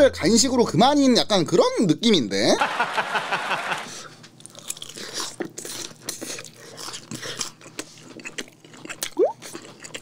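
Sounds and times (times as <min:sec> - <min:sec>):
person chewing food: 0:04.2 - 0:10.0.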